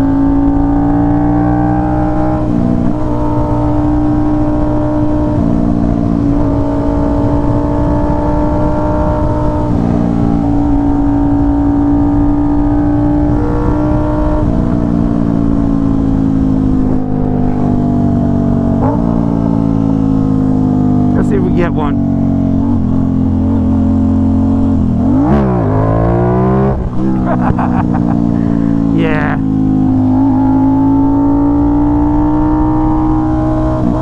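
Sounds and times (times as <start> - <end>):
wind noise on microphone: 2.3 - 19.8
motorcycle engine running: 10.5 - 32.0.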